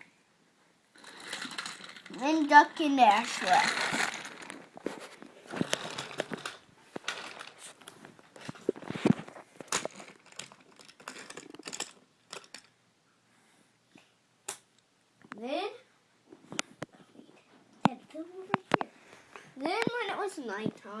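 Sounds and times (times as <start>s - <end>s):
toy trains clicking and knocking: 1.0s - 4.6s, 5.5s - 7.6s, 9.6s - 12.7s.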